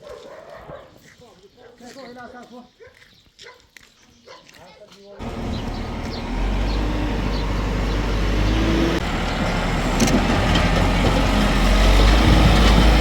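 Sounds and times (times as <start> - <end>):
heavy engine rumbling: 5.2 - 13.0.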